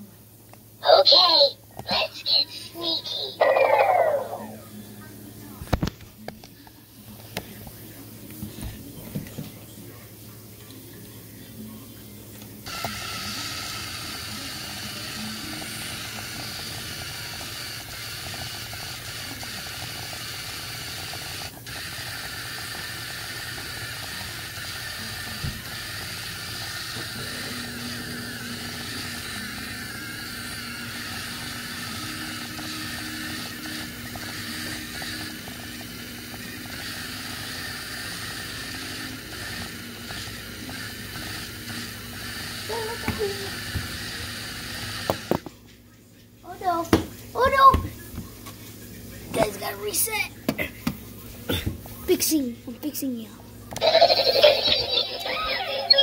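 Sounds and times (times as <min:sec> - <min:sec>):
toy robot motors whirring: 0:01.1 - 0:04.5, 0:12.7 - 0:45.4, 0:53.7 - 0:56.0.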